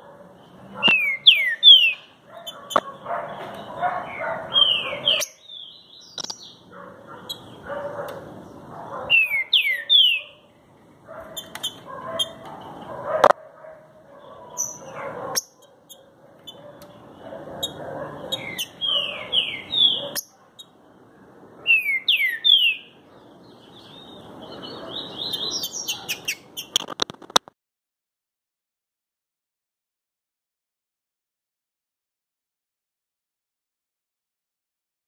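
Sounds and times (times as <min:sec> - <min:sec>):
rough background noise: 0:00.0 - 0:21.3, 0:22.7 - 0:27.5
bird singing whistled phrases: 0:00.9 - 0:02.1, 0:09.1 - 0:10.3, 0:21.7 - 0:22.9.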